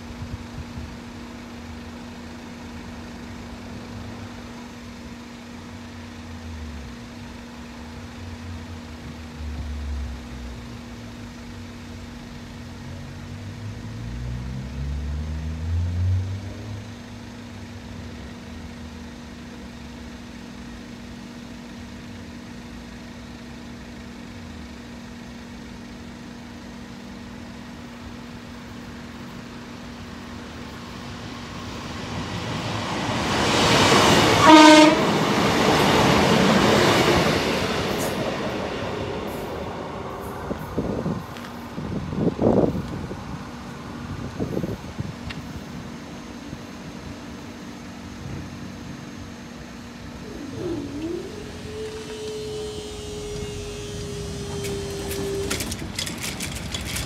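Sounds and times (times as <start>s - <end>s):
diesel train passing: 0.0s - 57.0s
low engine note: 34.3s - 57.0s
train horn: 34.4s - 35.3s.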